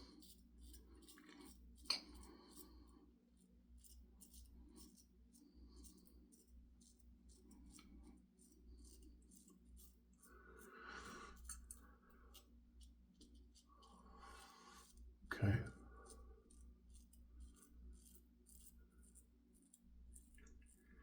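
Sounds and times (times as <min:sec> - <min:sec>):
razor blade scraping stubble: 0:16.0 - 0:20.4.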